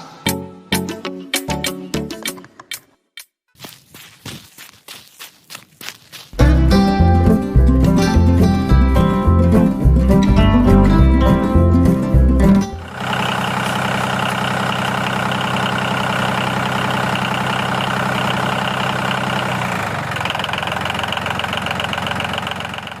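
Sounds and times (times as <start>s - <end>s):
tractor engine idling: 11.3s - 23.0s.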